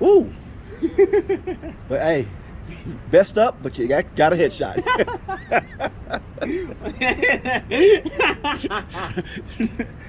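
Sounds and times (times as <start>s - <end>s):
people talking and chuckling: 0.6s - 1.9s, 2.6s - 3.1s, 4.4s - 10.0s.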